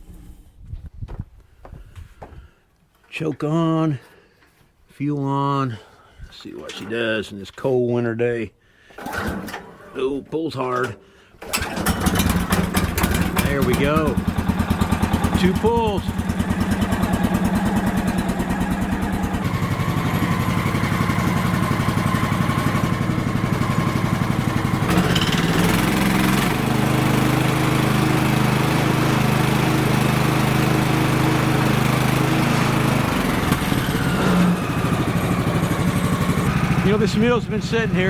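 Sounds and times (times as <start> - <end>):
small gasoline engine running: 9.0 - 9.7, 11.4 - 38.0.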